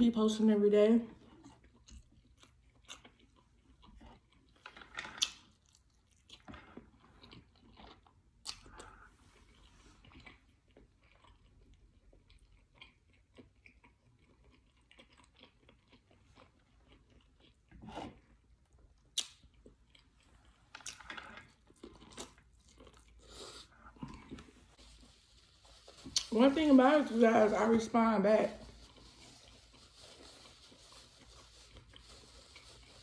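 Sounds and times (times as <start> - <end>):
person chewing and crunching food: 1.1 - 27.2, 28.5 - 33.0.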